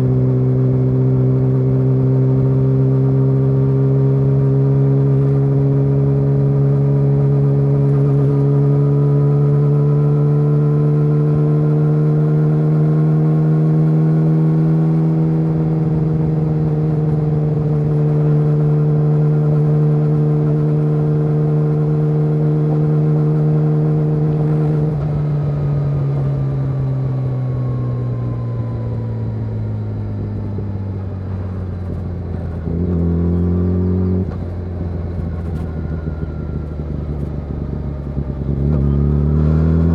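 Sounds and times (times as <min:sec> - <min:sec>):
motorcycle engine revving: 0:10.8 - 0:39.9.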